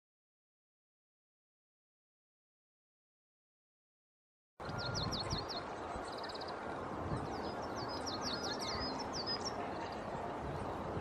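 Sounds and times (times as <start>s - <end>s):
outdoor background noise: 4.6s - 11.0s
songbirds chirping: 4.6s - 11.0s.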